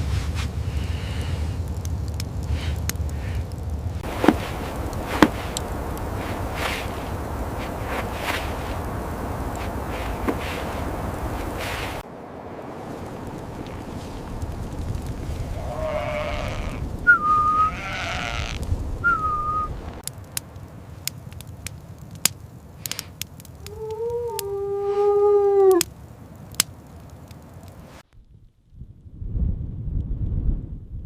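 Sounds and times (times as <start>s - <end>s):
wind blowing: 0.0s - 31.0s
short whistling tones: 17.1s - 18.4s, 19.0s - 19.8s
sheep bleating: 17.7s - 18.6s.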